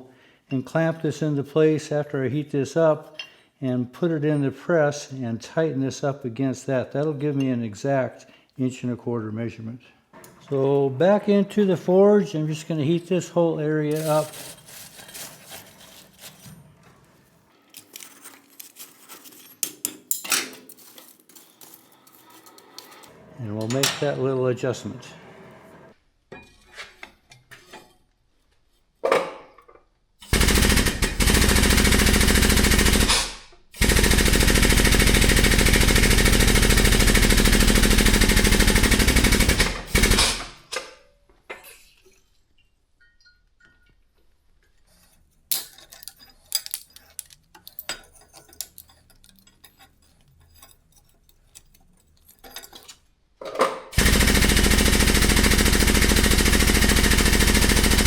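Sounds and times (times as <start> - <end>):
powered shop press running: 30.2 - 40.6, 54.0 - 58.0.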